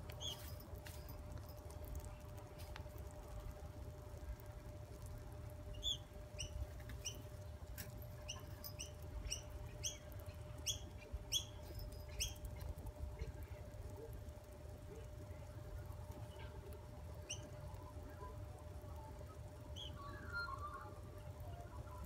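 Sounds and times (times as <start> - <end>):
bird chirping: 0.2 - 0.5, 5.7 - 7.3, 8.2 - 12.6.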